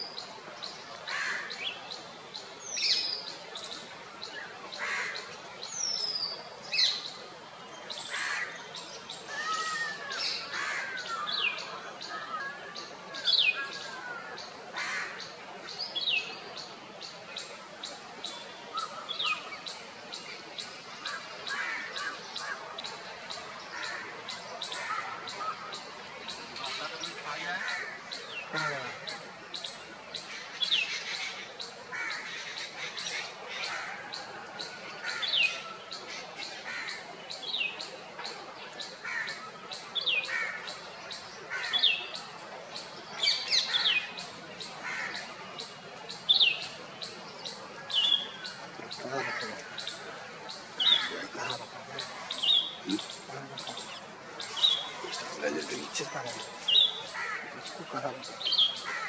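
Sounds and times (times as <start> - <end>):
bird chirps: 42.8 - 58.9.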